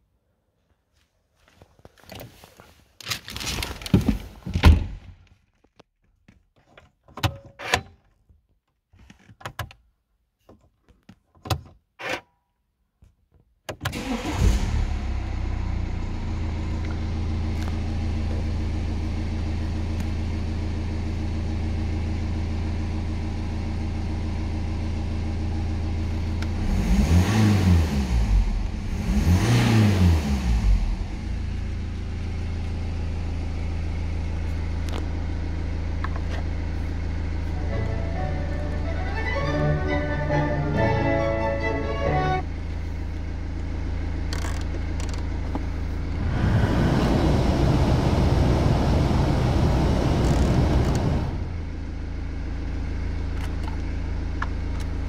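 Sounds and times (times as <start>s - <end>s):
engine revving: 14.0s - 17.7s, 26.4s - 31.8s, 46.2s - 51.6s
diesel car engine idling: 14.0s - 26.6s, 30.6s - 55.0s.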